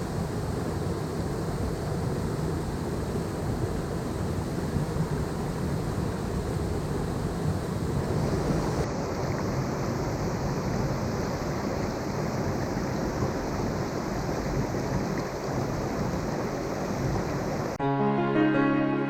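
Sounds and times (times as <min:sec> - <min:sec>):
waterfall rushing: 0:08.0 - 0:18.9.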